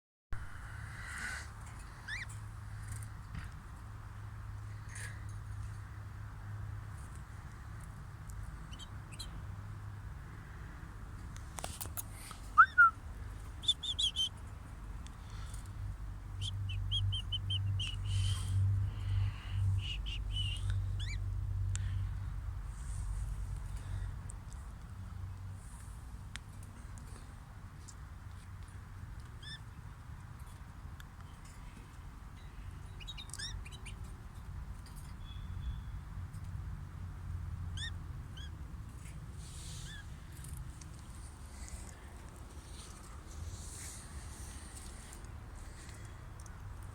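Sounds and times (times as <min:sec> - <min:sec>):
cage birds chirping: 0:01.1 - 0:03.2, 0:04.2 - 0:10.1, 0:11.6 - 0:24.0, 0:29.2 - 0:30.6, 0:31.2 - 0:36.6, 0:37.2 - 0:46.9.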